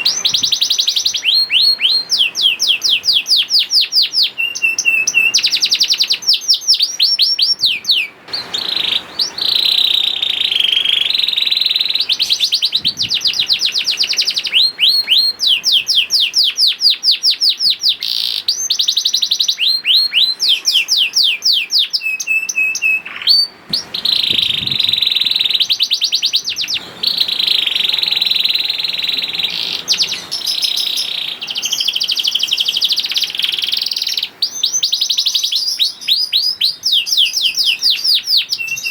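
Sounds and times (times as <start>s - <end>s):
canary singing fast trills: 0.0s - 38.9s.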